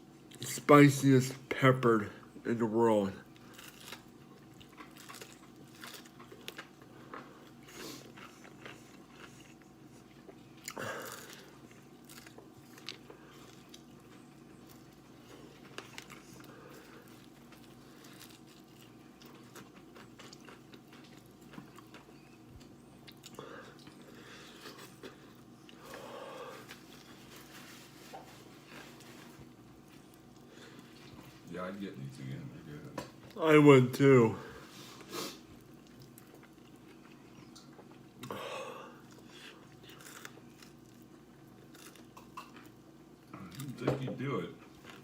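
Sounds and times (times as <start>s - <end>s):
steady low hum: 0.0s - 45.0s
chewing crunches: 3.3s - 27.7s, 35.5s - 38.3s, 39.0s - 43.8s.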